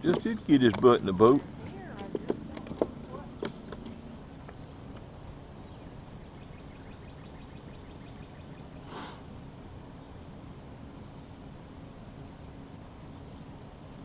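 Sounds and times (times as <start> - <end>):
insect drone: 0.0 - 14.0
low hum: 0.0 - 14.0
faint bird chirps: 5.0 - 9.4.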